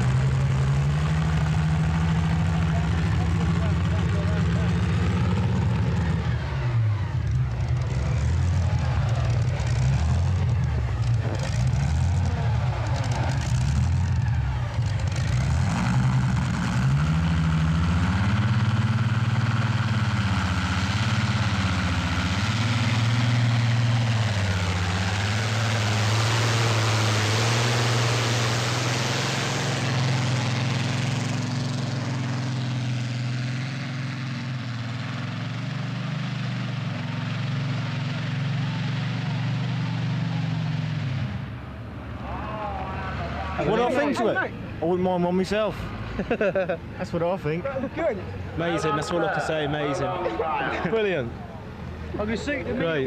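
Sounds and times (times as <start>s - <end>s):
tractor engine at high revs: 0.0s - 42.2s.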